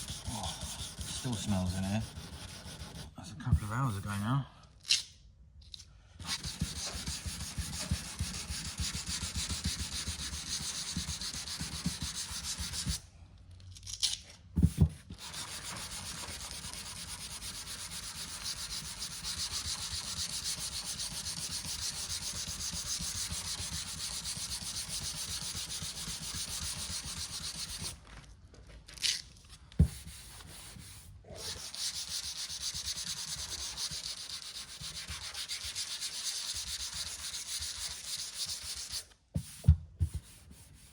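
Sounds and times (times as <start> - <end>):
sanding block scratching: 0.0 - 3.2, 6.2 - 13.0, 15.2 - 28.0, 29.9 - 39.6.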